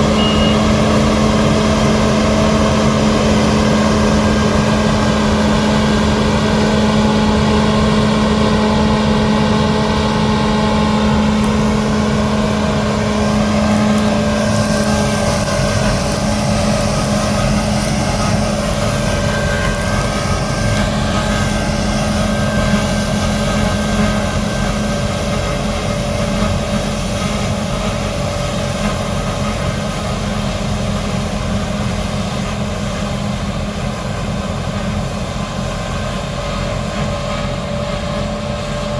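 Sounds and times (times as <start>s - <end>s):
diesel harvest machinery running: 0.0s - 38.9s
strong low hum: 0.0s - 38.9s.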